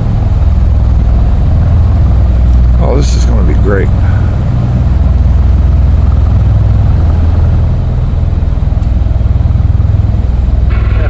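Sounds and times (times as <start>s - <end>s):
tiltrotor aircraft engines throbbing: 0.0s - 11.0s.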